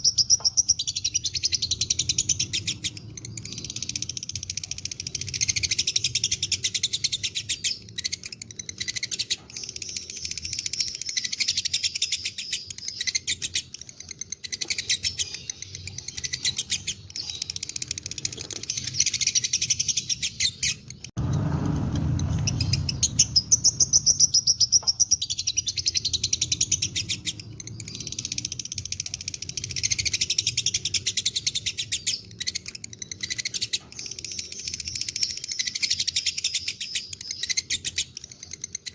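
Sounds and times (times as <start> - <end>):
lovebird chirping rapidly: 0.0 - 38.9
low rumble: 21.1 - 24.8.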